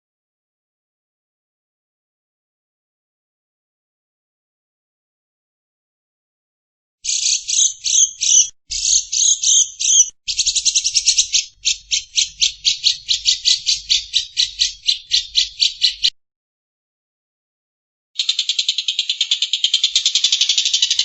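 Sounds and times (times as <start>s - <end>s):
bird chattering calls: 7.1s - 16.1s, 18.2s - 21.0s
bird rasping notes: 7.1s - 16.1s.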